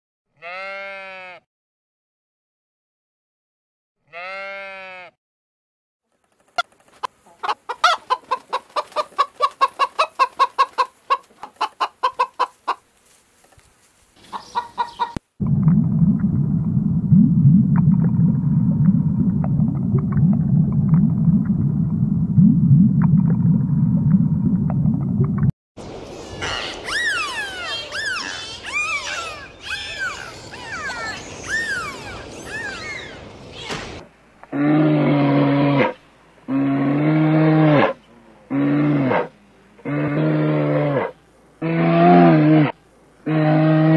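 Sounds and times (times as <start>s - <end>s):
hen clucking: 6.6s - 12.8s, 14.2s - 15.2s
low steady noise with clicks: 15.4s - 22.1s.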